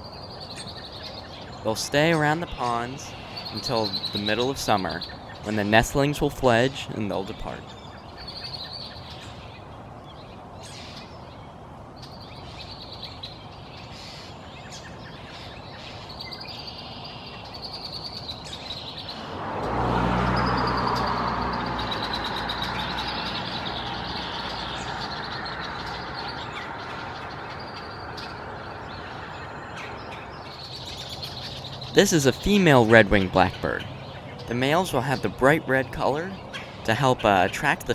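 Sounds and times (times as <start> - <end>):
blackbirds chirping and calling: 0.3 - 11.4, 20.3 - 37.9
passing vehicle road noise: 18.3 - 37.9.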